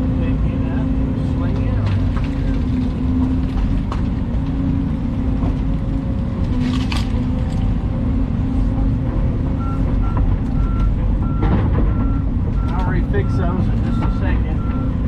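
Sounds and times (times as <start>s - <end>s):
excavator diesel engine running: 0.0s - 15.0s
reversing alarm beeping: 9.6s - 15.0s.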